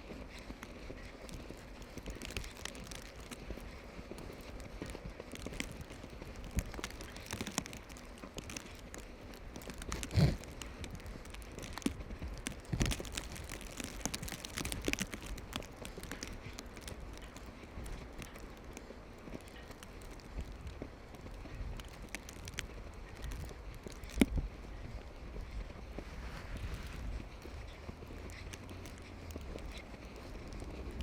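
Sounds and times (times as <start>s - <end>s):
faint steady background noise: 0.0s - 31.0s
footsteps crunching in snow: 0.0s - 31.0s.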